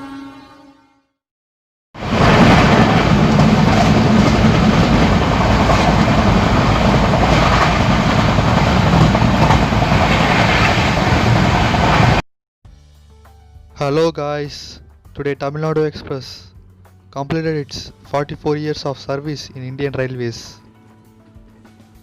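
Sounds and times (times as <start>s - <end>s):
train wheels rumbling on rails: 2.0s - 12.2s.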